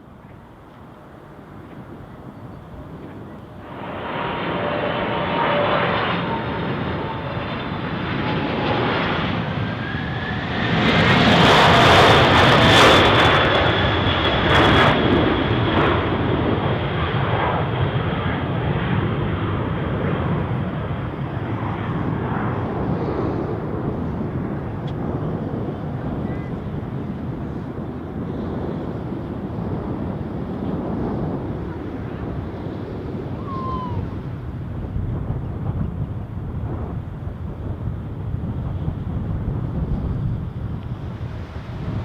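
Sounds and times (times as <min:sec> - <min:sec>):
jet aircraft roar passing overhead: 0:00.0 - 0:42.0.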